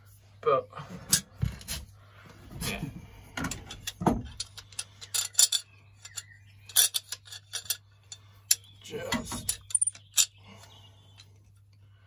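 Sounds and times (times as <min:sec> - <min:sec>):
metal clatter: 0:03.4 - 0:10.4
metallic clicks on plumbing pipes: 0:03.4 - 0:10.5.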